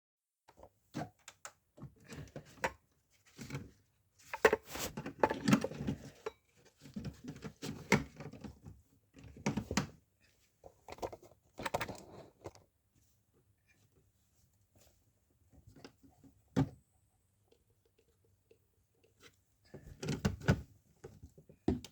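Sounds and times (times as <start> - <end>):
objects being handled: 2.1 - 13.1.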